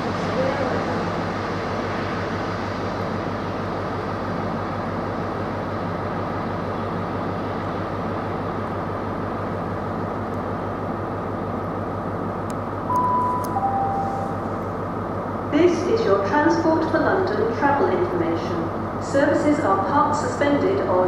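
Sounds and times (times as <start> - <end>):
train rumbling away: 8.4 - 21.0.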